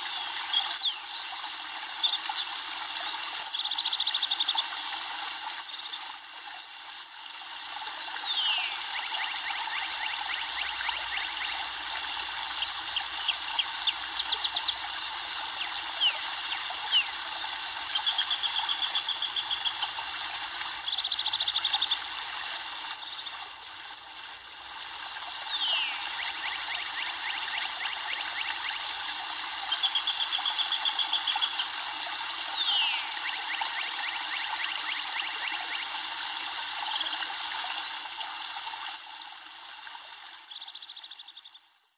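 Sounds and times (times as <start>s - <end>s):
steady hiss: 0.0s - 40.6s
songbird trills and whistles: 0.2s - 2.5s, 8.2s - 11.6s, 12.9s - 17.2s, 17.9s - 20.0s, 25.5s - 28.8s, 32.6s - 35.9s.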